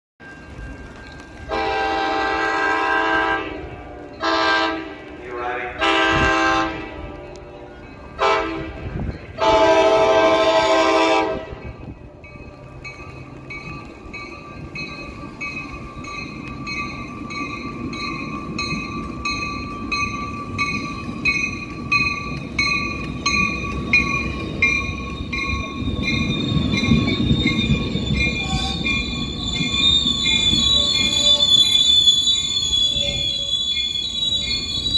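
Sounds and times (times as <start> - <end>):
train rumbling: 0.2 - 34.9
train horn blasts: 1.5 - 11.8
bell ringing steadily: 7.6 - 8.2, 11.5 - 32.0
high wheel squeal: 14.5 - 34.9.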